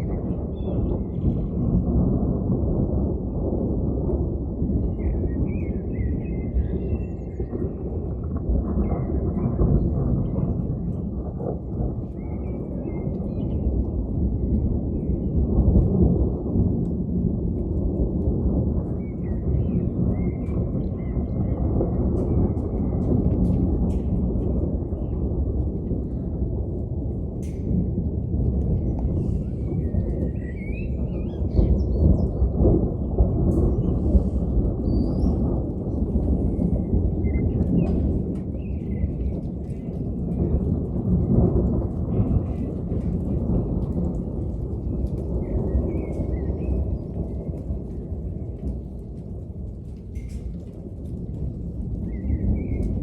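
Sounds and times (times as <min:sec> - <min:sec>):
rolling thunder: 0:00.0 - 0:53.0
birds chirping: 0:28.8 - 0:40.6.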